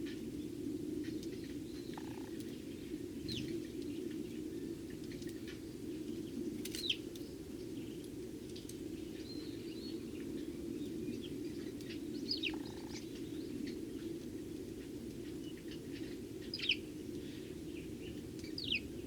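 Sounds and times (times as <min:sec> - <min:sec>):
sparrows chirping: 0:09.0 - 0:14.1, 0:15.2 - 0:19.0.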